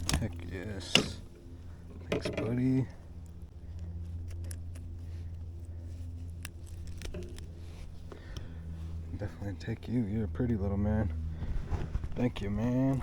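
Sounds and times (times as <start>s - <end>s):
light clicks and rattles: 0.0s - 8.5s
steady low hum: 0.0s - 13.0s.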